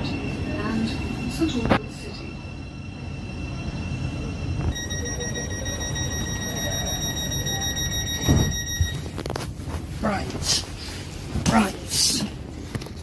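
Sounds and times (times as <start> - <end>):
low rumble of train: 0.0 - 13.0
electronic warning tone: 4.7 - 9.1.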